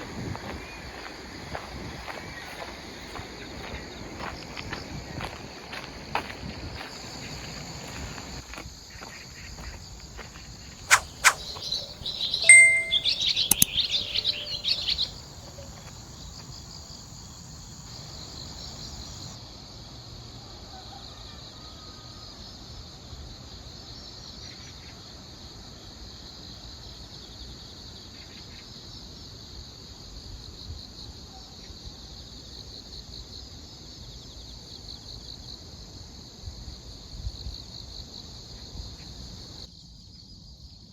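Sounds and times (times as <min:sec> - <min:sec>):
insects chirring: 0:00.3 - 0:19.3
bird chirping: 0:10.9 - 0:15.1
sharp clicks: 0:12.5 - 0:13.9.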